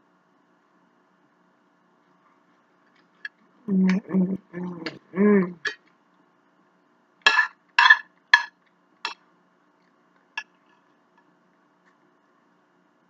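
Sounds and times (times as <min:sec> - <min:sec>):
bowls clinking: 0:07.3 - 0:08.5.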